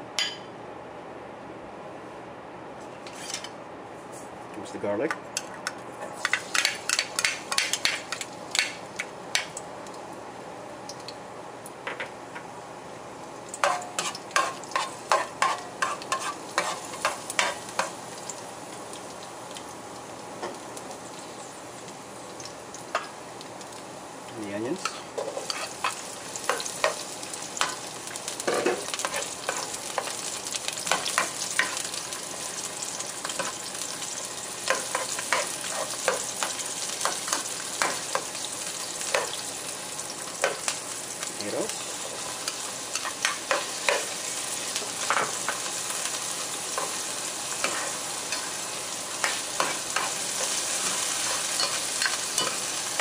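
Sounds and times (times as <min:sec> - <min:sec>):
spatula scraping and clicking on pan: 0:03.0 - 0:03.5, 0:13.6 - 0:17.6, 0:24.8 - 0:27.0
onions frying in hot oil: 0:06.0 - 0:53.0.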